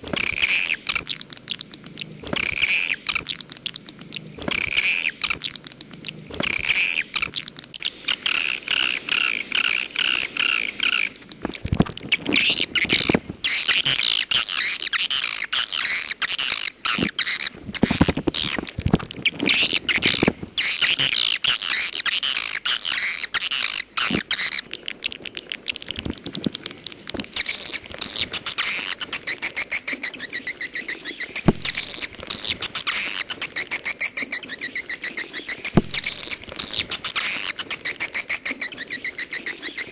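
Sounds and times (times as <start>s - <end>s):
fast clicking: 0.0s - 8.2s, 24.2s - 30.3s
swiftlets twittering chirps: 0.0s - 39.9s.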